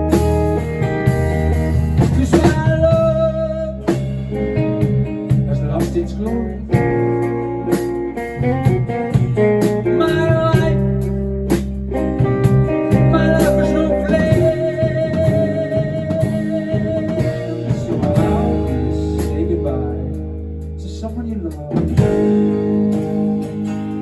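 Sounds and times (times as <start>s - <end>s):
live rock band playing: 0.0s - 24.0s
wavering guitar lead note: 12.7s - 20.6s.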